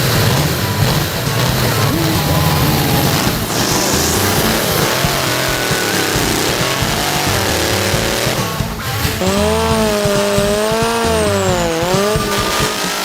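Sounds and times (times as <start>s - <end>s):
chainsaw engine at high revs: 0.0s - 13.0s.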